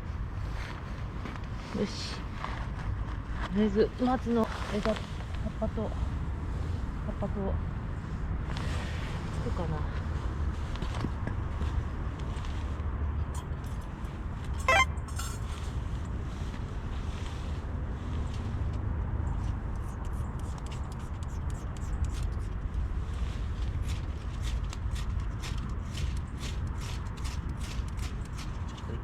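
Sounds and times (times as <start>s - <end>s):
wind rumble on microphone: 0.0s - 14.6s, 15.4s - 29.0s
short squeak: 14.6s - 15.6s.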